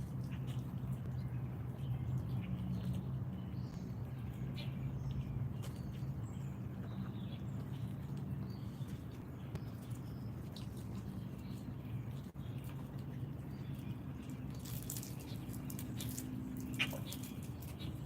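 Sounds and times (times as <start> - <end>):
steady low hum: 0.0 - 18.0
wild birds chirping: 0.0 - 18.0.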